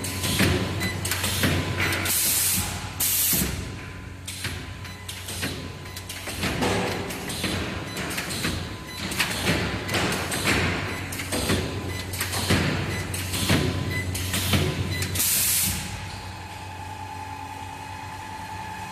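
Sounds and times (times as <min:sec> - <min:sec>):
welding machine clanks and thumps: 0:00.0 - 0:16.0
electrical hum: 0:00.0 - 0:18.9
pneumatic air release hiss: 0:02.1 - 0:03.6.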